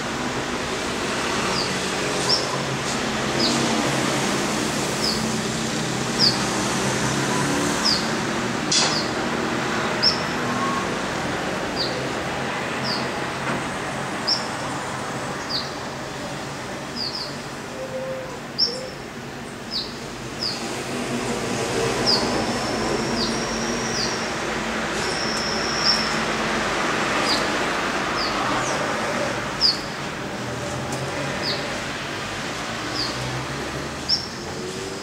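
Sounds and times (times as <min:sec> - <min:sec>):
city traffic hum: 0:00.0 - 0:35.0.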